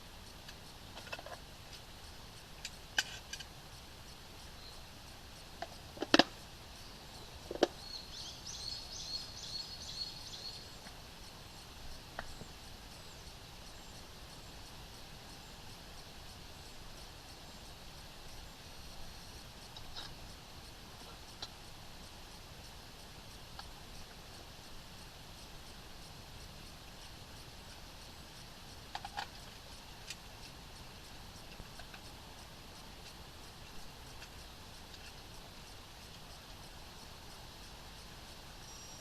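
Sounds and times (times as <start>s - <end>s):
small bird twittering: 6.8s - 10.9s, 38.6s - 39.0s.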